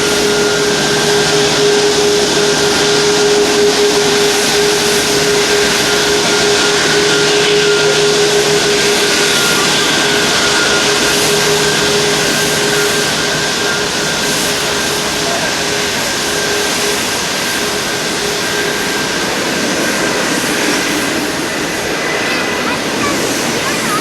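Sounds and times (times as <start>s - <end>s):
jet engine whine: 0.0s - 24.0s
jet engines roaring: 0.0s - 24.0s.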